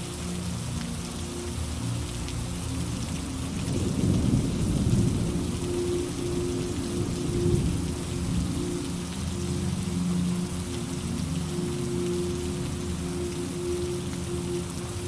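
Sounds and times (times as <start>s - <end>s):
steady rain falling: 0.0s - 15.0s
rolling thunder rumble: 3.6s - 8.6s.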